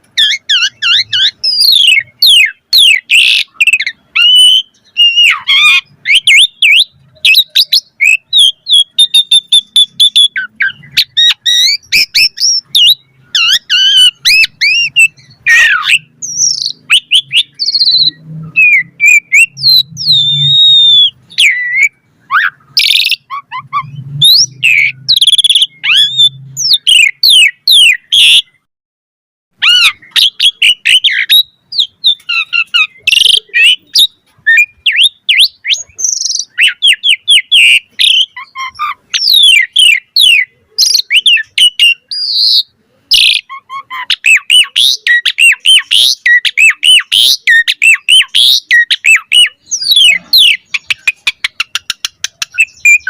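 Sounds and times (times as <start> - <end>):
starling singing: 0.0 - 28.7, 29.6 - 53.0.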